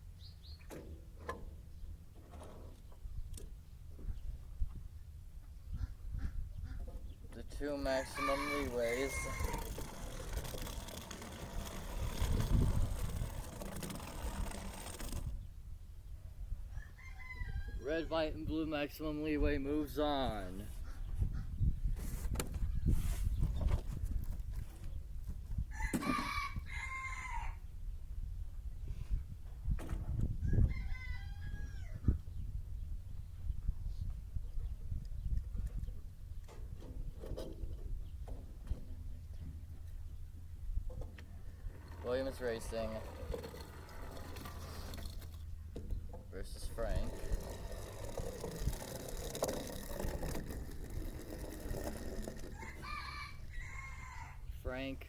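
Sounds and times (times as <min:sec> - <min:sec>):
rooster crowing: 0:08.0 - 0:09.8, 0:16.7 - 0:17.8, 0:25.7 - 0:27.6, 0:30.5 - 0:32.0, 0:52.5 - 0:54.4
toy cars rattling on track: 0:08.0 - 0:15.3, 0:47.0 - 0:52.6.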